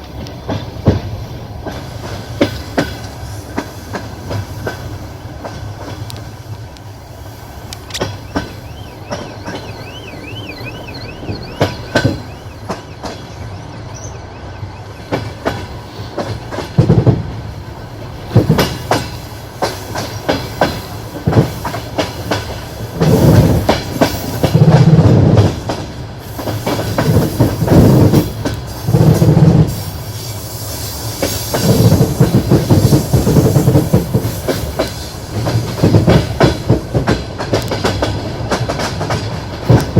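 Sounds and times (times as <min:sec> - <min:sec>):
train wheels clattering over joints: 0:00.0 - 0:06.5, 0:07.7 - 0:14.1, 0:15.0 - 0:39.9
train running rumble: 0:00.0 - 0:39.9
high-pitched wheel squeal: 0:08.0 - 0:15.1.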